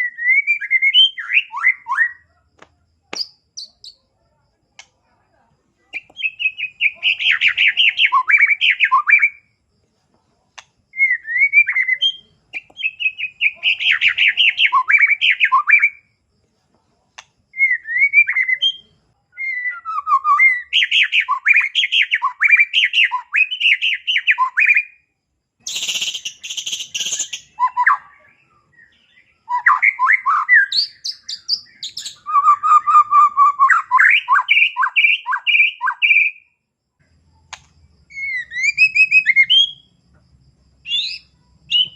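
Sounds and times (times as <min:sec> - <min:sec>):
bird singing chirps and trills: 0:00.0 - 0:02.2, 0:03.1 - 0:04.0, 0:05.9 - 0:09.4, 0:11.0 - 0:16.0, 0:25.6 - 0:36.5, 0:38.1 - 0:39.9, 0:40.9 - 0:41.9.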